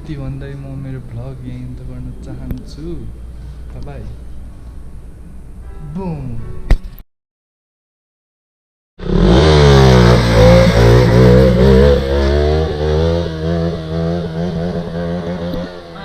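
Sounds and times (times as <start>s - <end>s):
motorcycle engine starting and revving: 9.0s - 16.0s.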